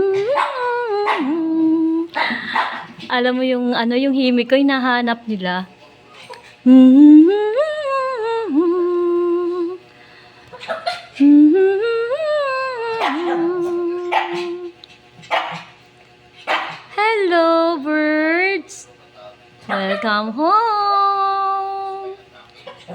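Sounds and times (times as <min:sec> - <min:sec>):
woman humming: 0:00.0 - 0:02.6, 0:06.6 - 0:09.9, 0:11.2 - 0:14.8, 0:20.0 - 0:22.2.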